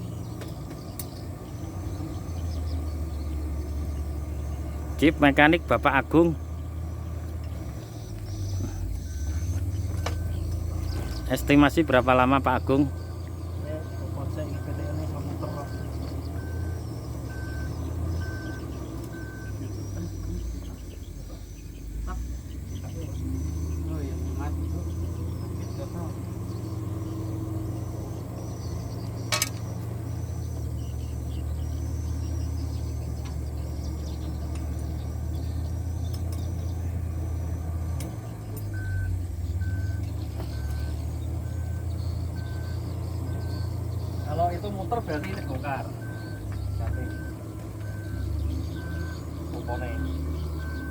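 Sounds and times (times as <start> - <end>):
truck diesel engine idling: 0.0 - 50.9
electronic warning beeps: 7.9 - 33.1, 38.5 - 50.9.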